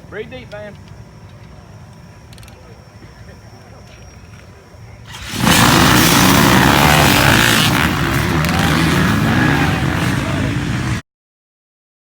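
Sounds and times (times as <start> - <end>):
dirt bike engine revving high: 5.1 - 11.0.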